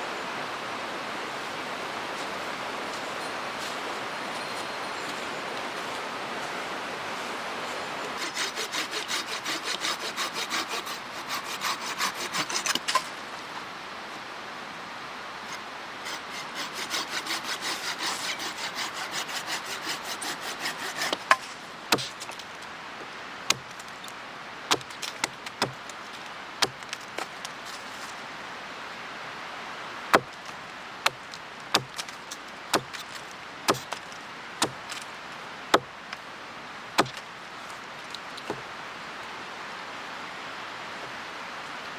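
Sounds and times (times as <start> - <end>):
hand saw cutting wood: 8.2 - 13.1, 16.0 - 22.4, 23.5 - 23.9, 24.7 - 25.8, 30.1 - 30.4, 31.8 - 35.0, 37.0 - 37.2
sharp wooden cracks: 21.0 - 22.7, 24.7 - 27.8, 30.1 - 35.1, 37.0 - 37.3.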